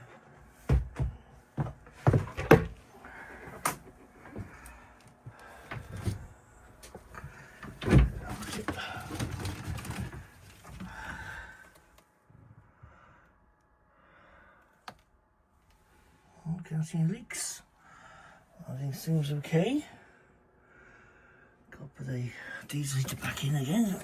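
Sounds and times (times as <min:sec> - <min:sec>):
knocks and thumps: 0:00.6 - 0:02.8
rustling and scraping: 0:05.4 - 0:11.0.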